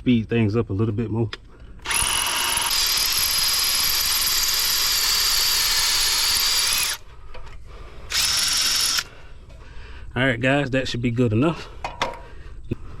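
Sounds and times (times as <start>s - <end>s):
drill drilling into brick: 1.8s - 7.0s, 8.1s - 9.1s.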